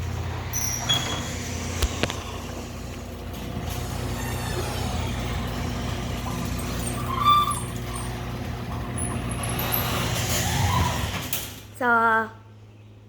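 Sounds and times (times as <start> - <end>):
garage door opener motor humming: 0.0 - 11.9.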